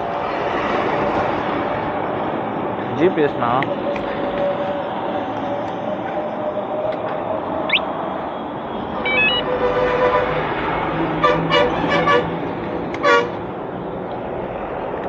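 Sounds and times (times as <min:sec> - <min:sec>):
road traffic noise: 0:00.0 - 0:15.0
vehicle horns honking: 0:09.0 - 0:10.5, 0:11.2 - 0:12.3, 0:13.0 - 0:13.4.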